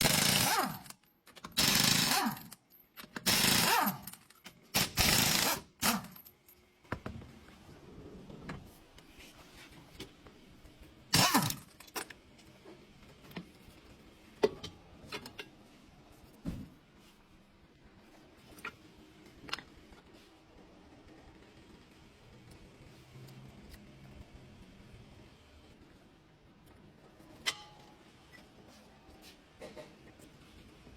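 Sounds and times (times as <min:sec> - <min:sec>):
power tool bursts: 0:11.1 - 0:11.6.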